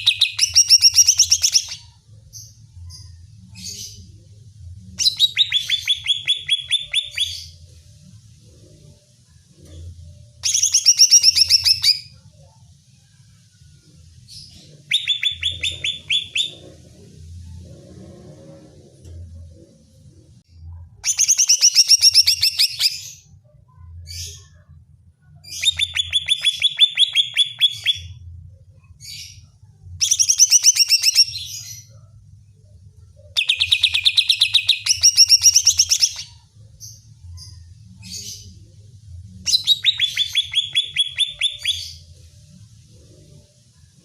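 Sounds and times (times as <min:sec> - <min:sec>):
bird rapid trilling song: 0:00.0 - 0:01.9, 0:33.4 - 0:36.4, 0:39.5 - 0:42.0.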